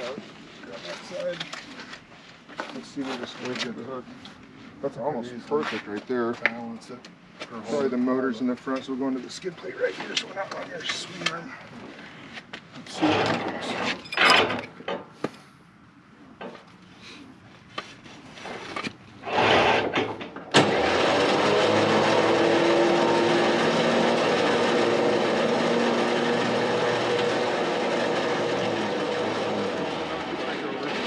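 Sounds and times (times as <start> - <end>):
tow truck lifting motor running: 19.2 - 31.0.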